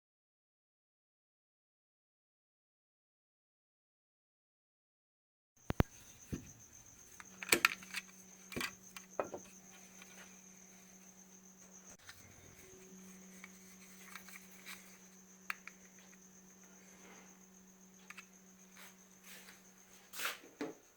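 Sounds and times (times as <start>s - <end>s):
sharp clicks and knocks: 5.7s - 10.1s
faint high-pitched whine: 5.7s - 20.9s
low hum: 5.8s - 20.0s.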